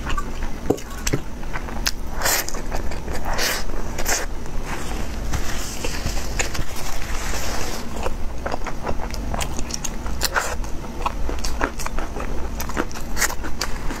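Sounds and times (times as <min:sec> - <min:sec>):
wet chewing clicks and smacks: 0:08.0 - 0:14.0.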